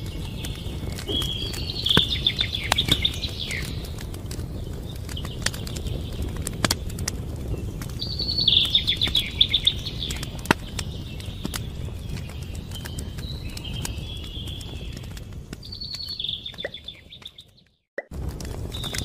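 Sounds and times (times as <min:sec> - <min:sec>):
steady low rumble: 0:00.0 - 0:16.9, 0:18.1 - 0:19.0
songbird singing high notes: 0:00.2 - 0:03.8.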